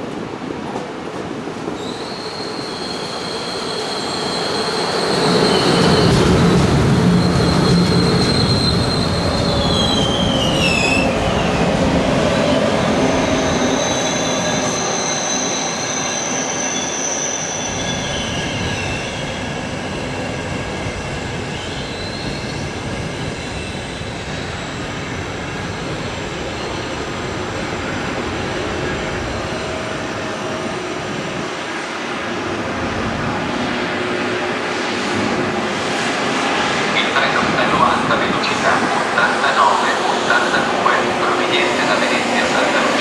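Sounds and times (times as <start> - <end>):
train wheels squealing on rails: 1.7 - 31.6, 35.9 - 43.0
train rumble: 17.8 - 43.0.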